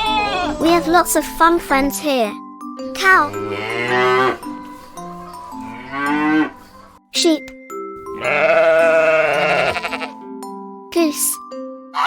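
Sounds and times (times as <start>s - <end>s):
gentle background music: 0.0s - 12.0s
cow mooing: 3.2s - 4.4s, 8.2s - 10.1s
sheep bleating: 8.2s - 10.2s.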